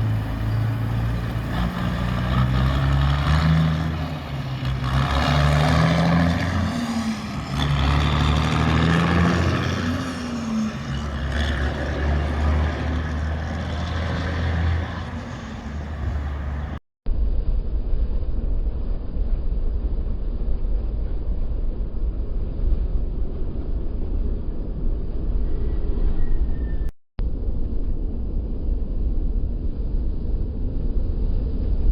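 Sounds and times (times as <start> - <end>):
heavy diesel truck engine: 0.0 - 16.8.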